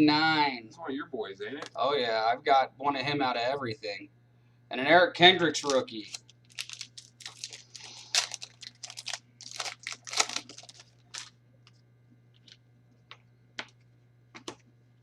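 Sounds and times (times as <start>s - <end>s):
steady low hum: 0.0s - 15.0s
trading cards crinkling and rustling: 5.5s - 13.8s.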